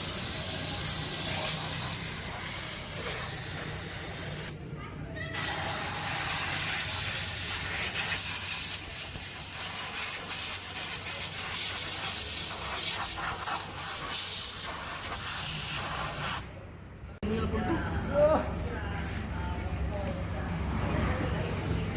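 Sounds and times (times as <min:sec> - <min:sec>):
spray gun hissing: 0:00.0 - 0:04.6, 0:05.4 - 0:16.5.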